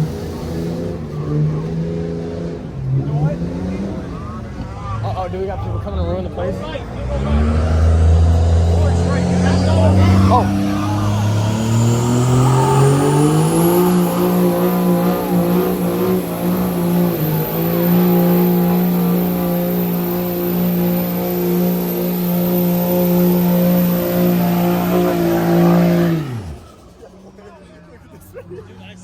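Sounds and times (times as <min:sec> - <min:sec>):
truck engine revving: 0:00.0 - 0:29.0
faint high whine: 0:08.8 - 0:27.0.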